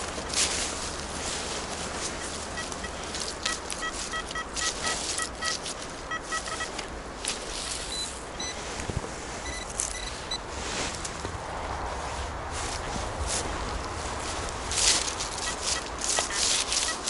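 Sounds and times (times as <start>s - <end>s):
rustling: 0.0s - 17.0s
metal detector beeps: 2.0s - 6.8s, 7.9s - 8.6s, 9.4s - 10.4s, 15.4s - 17.0s.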